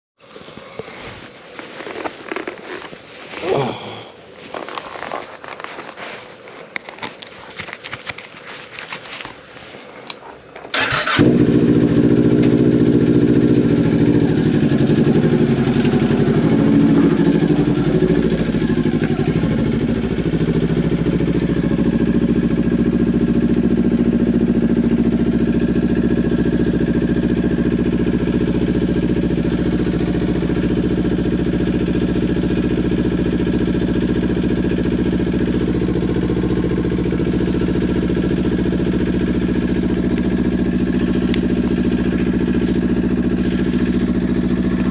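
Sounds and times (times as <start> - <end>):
motorcycle engine cranking: 10.1 - 21.8
motorcycle engine idling: 10.6 - 44.9.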